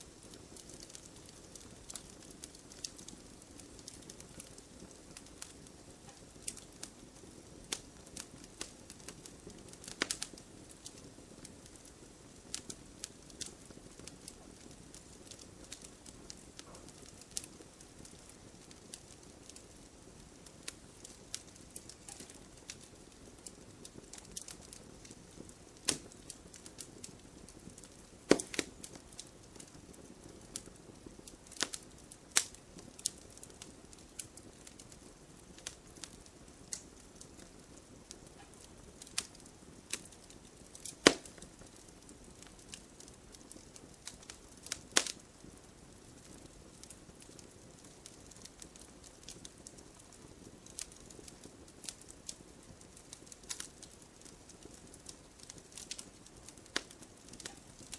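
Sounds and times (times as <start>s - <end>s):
wood fire crackling: 0.0s - 57.9s.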